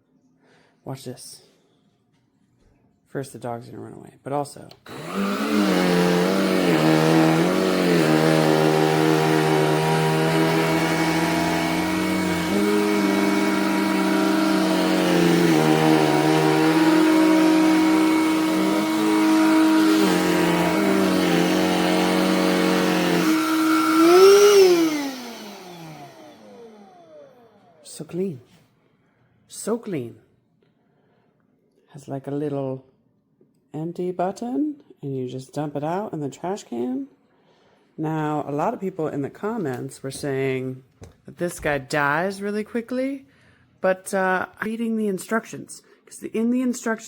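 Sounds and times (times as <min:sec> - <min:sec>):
handheld vacuum motor whine: 0:04.8 - 0:27.8.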